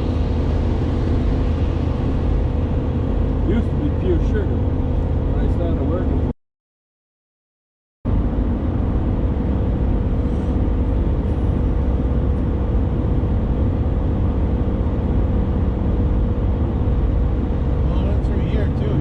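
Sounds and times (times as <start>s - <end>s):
road noise inside moving vehicle: 0.0s - 6.3s, 8.1s - 19.0s.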